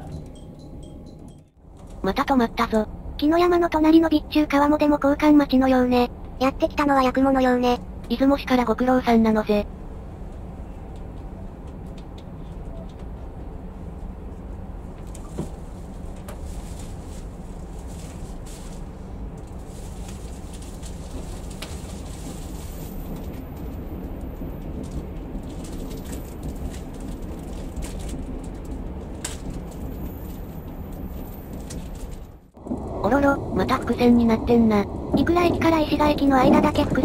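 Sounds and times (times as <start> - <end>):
passing train rumble: 0.0 - 37.0.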